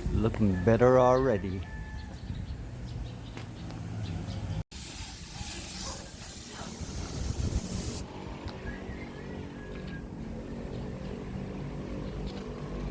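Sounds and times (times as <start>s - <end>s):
paint spray gun hissing: 4.7s - 8.0s.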